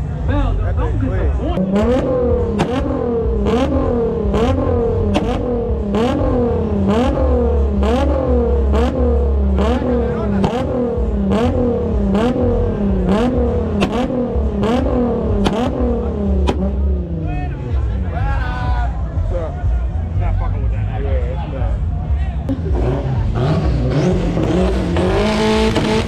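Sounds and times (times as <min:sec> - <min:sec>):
car engine revving with cracks: 0:01.6 - 0:18.1, 0:22.5 - 0:26.0.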